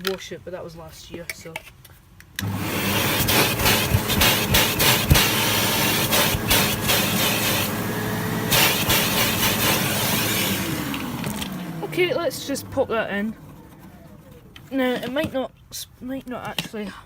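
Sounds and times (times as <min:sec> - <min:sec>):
vacuum nozzle scraping and clicking: 0:02.4 - 0:07.7, 0:08.5 - 0:11.6
vacuum cleaner running: 0:02.4 - 0:14.7.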